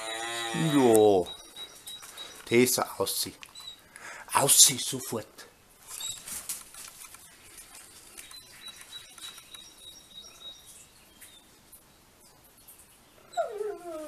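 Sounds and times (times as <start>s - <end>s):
small bird chirping: 0.4s - 2.8s, 3.5s - 3.9s, 8.1s - 11.5s.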